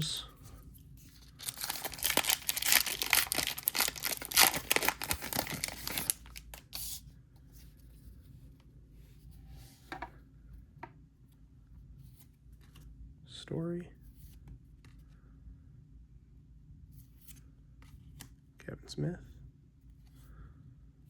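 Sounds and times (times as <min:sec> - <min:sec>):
wrapper tearing and crinkling: 0:01.3 - 0:06.8.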